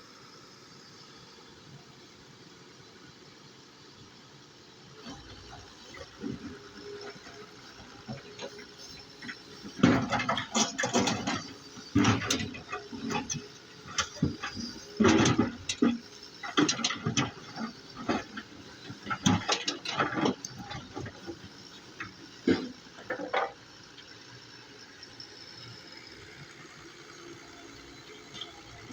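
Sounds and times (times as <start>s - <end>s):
excavator scraping and clattering: 5.0s - 24.2s.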